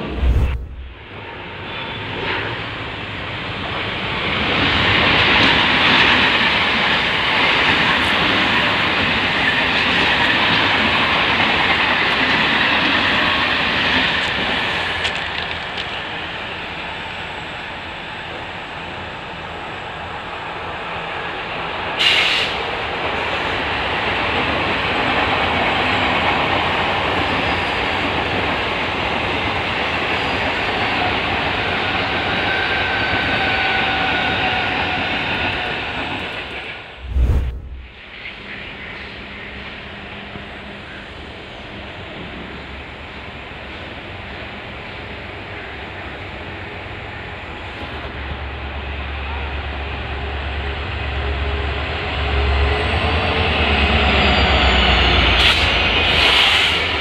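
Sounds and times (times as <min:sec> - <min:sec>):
brief sharp noise: 0:00.0 - 0:01.1, 0:37.0 - 0:38.0
train wheels rumbling on rail: 0:00.0 - 0:17.4, 0:37.9 - 0:57.0.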